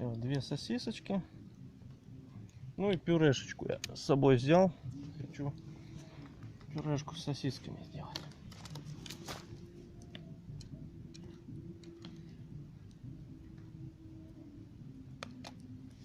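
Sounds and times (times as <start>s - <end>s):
log fire crackling: 0.0s - 16.0s
sharp pops and ticks: 3.7s - 4.0s.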